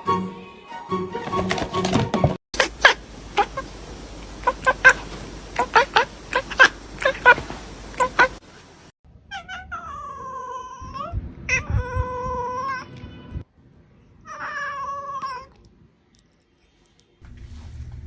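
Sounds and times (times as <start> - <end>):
cat yowling: 2.6 - 8.4
low steady hum: 2.6 - 8.9.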